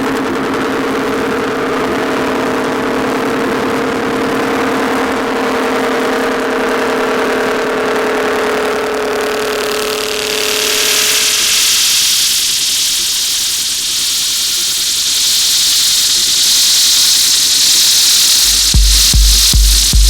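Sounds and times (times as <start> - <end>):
buzzing synth drone: 0.0 - 20.0
bright hissing noise burst: 9.0 - 20.0.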